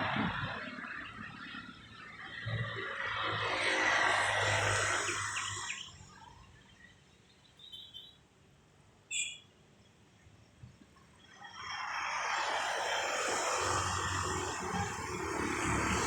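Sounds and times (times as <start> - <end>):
high bird chirps: 7.2 - 8.2, 9.1 - 9.5
steady rushing noise with hum: 11.4 - 16.0.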